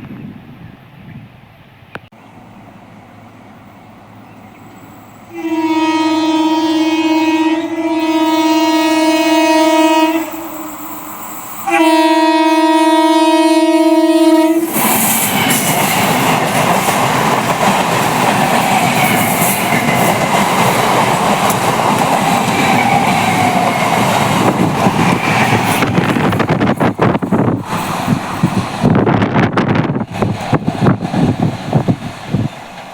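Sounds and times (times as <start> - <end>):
train passing with loud rumble: 0.0 - 32.9
train horn blasts: 5.3 - 10.9, 11.6 - 14.8
wheels clacking over rail joints: 14.7 - 32.9.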